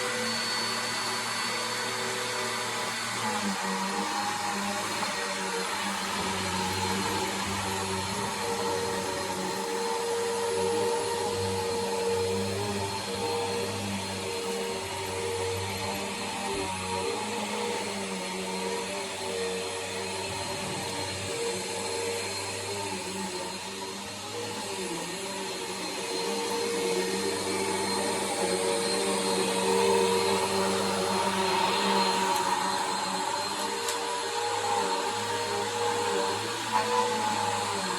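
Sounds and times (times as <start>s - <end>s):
upright vacuum cleaner running: 0.0s - 37.9s.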